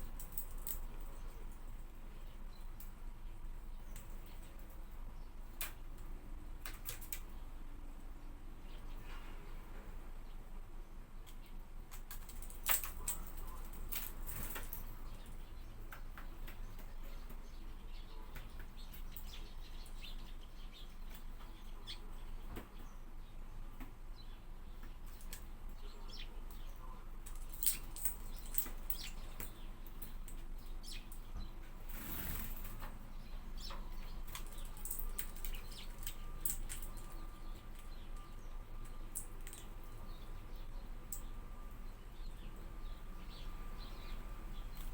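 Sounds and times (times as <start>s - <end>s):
bird clicks and chirps: 24.7s - 41.4s.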